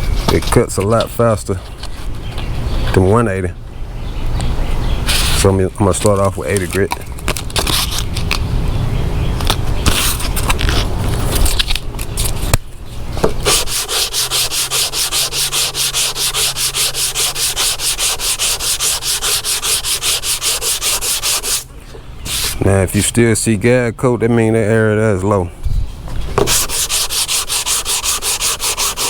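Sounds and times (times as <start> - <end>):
sandpaper rasping on filler: 5.1 - 5.5, 13.4 - 21.7, 22.3 - 22.6, 26.4 - 29.0.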